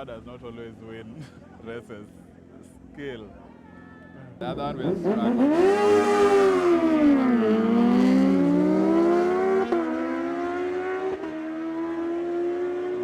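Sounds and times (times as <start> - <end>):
motorbike engines racing: 4.1 - 13.0.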